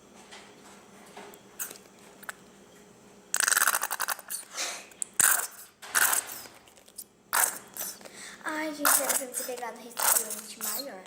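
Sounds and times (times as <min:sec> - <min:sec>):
plastic glue bottle squeezed: 0:05.2 - 0:08.0.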